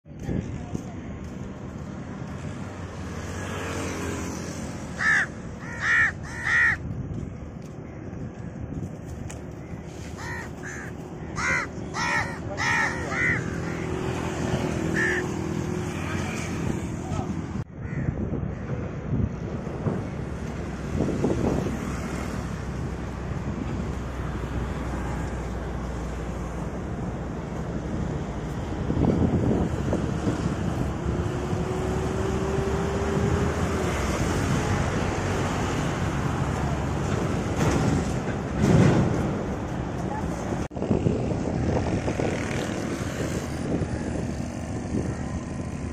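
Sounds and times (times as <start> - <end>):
wind buffeting microphone: 0.0 - 2.9, 6.2 - 11.9, 13.2 - 45.9
crows cawing: 5.0 - 6.8, 9.6 - 14.1, 14.8 - 15.4, 17.8 - 18.6.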